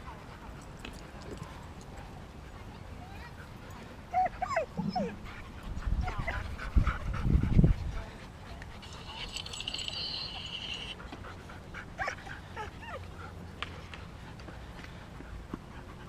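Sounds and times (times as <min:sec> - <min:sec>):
dogs whining and yipping: 0:04.1 - 0:05.4, 0:12.0 - 0:13.2.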